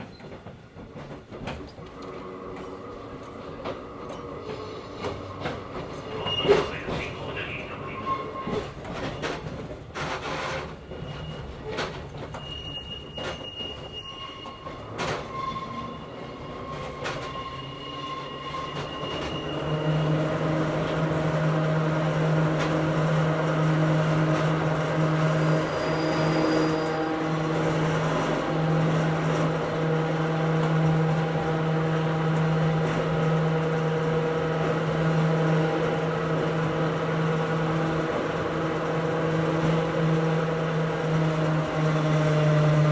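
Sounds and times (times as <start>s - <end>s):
train wheels clicking over rail joints: 0.0s - 7.2s, 8.4s - 15.4s
train wheels squealing on curves: 4.1s - 21.2s, 24.1s - 38.5s.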